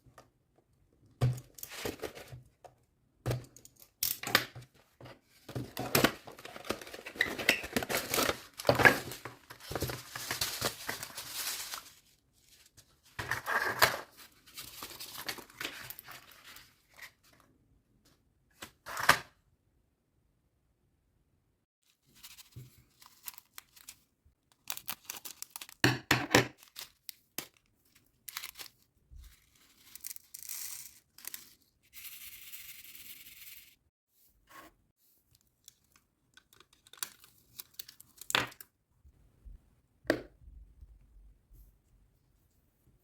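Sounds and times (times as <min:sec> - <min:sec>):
plastic packaging tearing and crinkling: 0:23.0 - 0:25.8, 0:26.5 - 0:27.6, 0:28.2 - 0:28.8.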